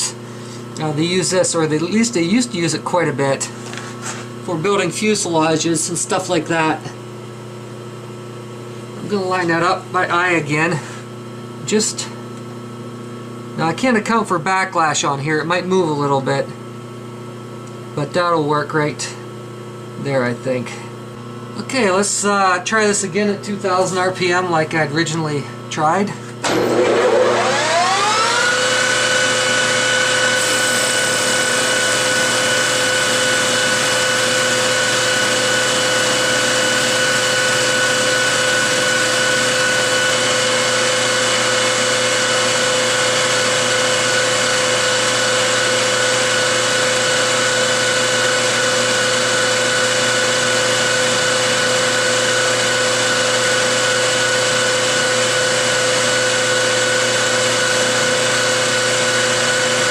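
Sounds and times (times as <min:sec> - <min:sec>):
lathe spindle whine: 0:26.4 - 0:59.9.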